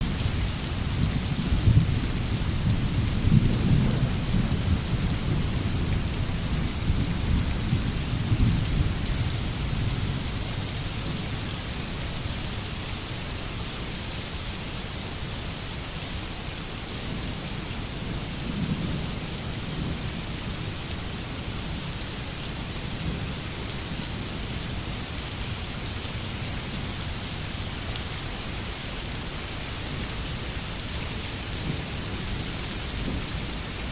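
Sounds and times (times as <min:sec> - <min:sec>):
steady rain: 0:00.0 - 0:33.9
distant rolling thunder: 0:00.9 - 0:10.3.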